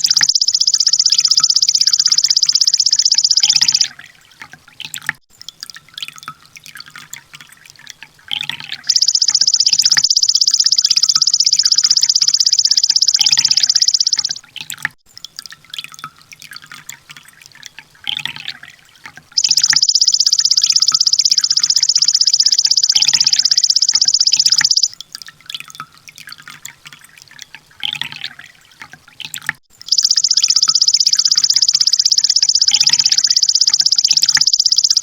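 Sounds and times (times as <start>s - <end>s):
bird high rapid trill: 0.0s - 3.9s, 8.8s - 14.4s, 19.4s - 24.9s, 29.9s - 35.0s
soft bird chirps: 0.0s - 4.0s, 8.5s - 14.4s, 19.4s - 24.9s, 29.9s - 35.0s.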